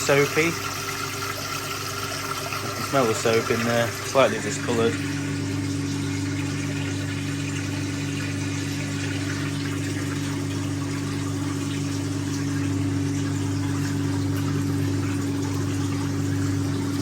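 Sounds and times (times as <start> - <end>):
washing machine drain pump humming: 0.0 - 17.0.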